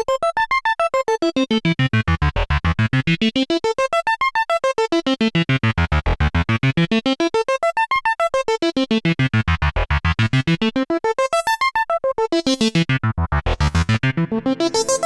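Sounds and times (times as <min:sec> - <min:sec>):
low synth bass notes: 0:09.3 - 0:10.6, 0:12.8 - 0:15.0
synthesizer staccato sequence: 0:12.5 - 0:15.0.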